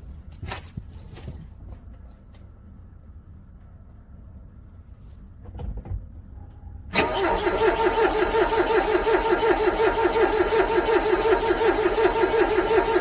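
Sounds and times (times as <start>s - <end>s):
car starter cranking engine: 6.9s - 13.0s.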